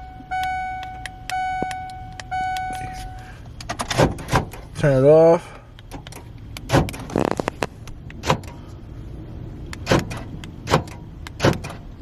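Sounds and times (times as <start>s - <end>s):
power door locks clunking: 9.8s - 11.9s.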